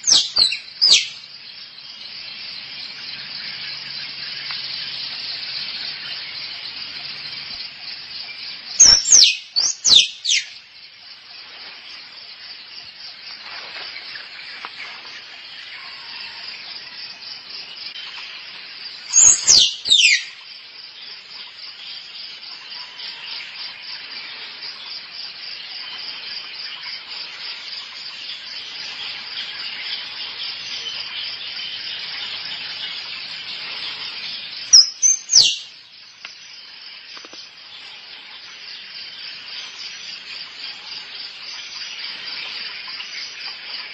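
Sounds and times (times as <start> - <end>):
squirrel chirping: 0.0 - 1.2, 8.8 - 10.5, 19.2 - 20.3, 34.7 - 35.7
pulsing insect chorus: 0.0 - 43.9.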